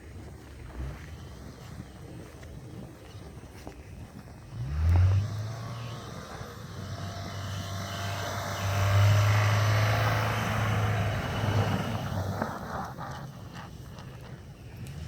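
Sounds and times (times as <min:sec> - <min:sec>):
car engine under load: 0:04.3 - 0:15.0.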